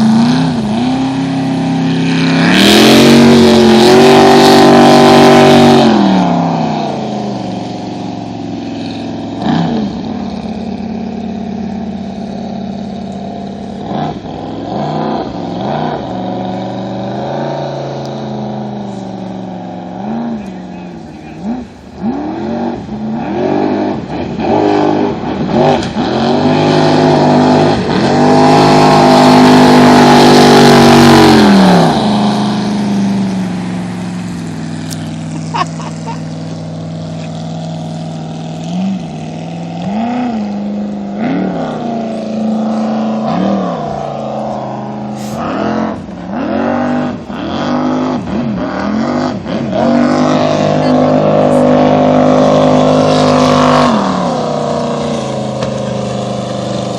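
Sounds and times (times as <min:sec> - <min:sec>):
boat engine idling: 0:00.0 - 0:22.2, 0:27.8 - 0:43.2, 0:50.1 - 0:56.9
boat engine revving: 0:00.0 - 0:56.9.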